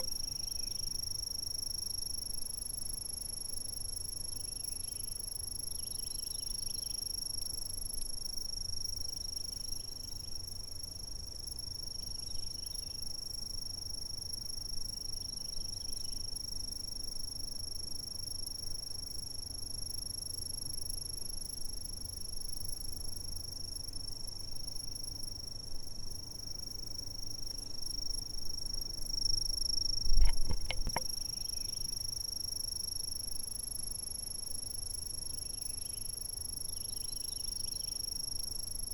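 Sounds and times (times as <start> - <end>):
insects trilling: 18.1 - 38.9.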